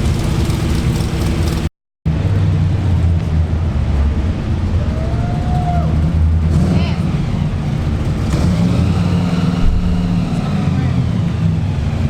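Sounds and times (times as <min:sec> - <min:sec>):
car engine with choppy beat: 0:05.8 - 0:12.0.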